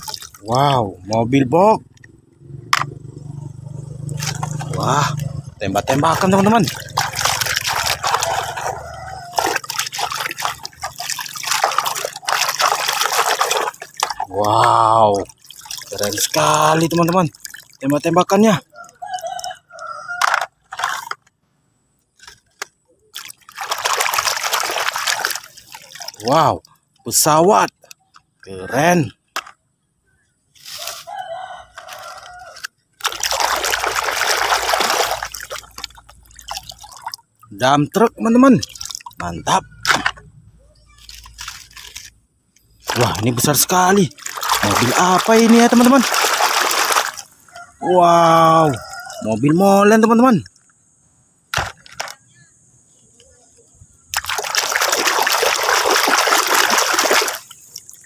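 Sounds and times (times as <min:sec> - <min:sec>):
water splashing and dripping: 0:00.0 - 0:19.9, 0:22.2 - 0:28.0, 0:31.8 - 0:50.8, 0:54.0 - 0:58.0
rooster crowing: 0:07.6 - 0:10.0, 0:18.6 - 0:20.5, 0:30.7 - 0:32.7, 0:46.9 - 0:49.6.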